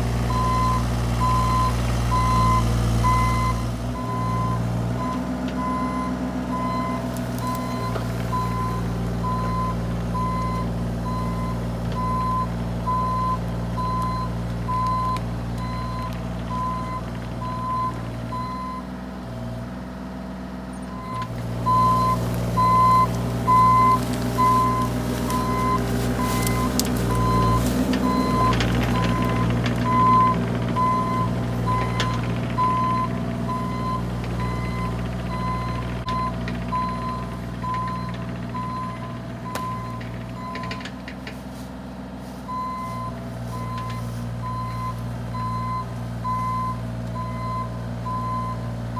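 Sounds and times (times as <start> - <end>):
mini excavator engine running: 0.0 - 48.9
travel alarm beeping: 21.0 - 40.8.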